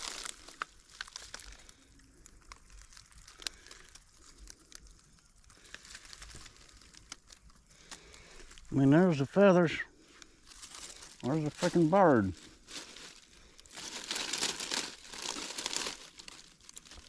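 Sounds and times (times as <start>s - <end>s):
twigs snapping: 0.0s - 8.7s, 10.1s - 17.0s
dry grass rustling and crackling: 0.0s - 17.0s.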